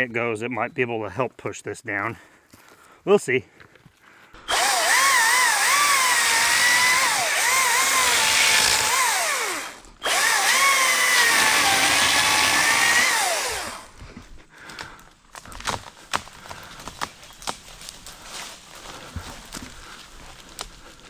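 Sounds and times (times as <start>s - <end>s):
electric chainsaw cutting wood: 4.4s - 14.0s
light clicks and crackles: 14.7s - 21.0s.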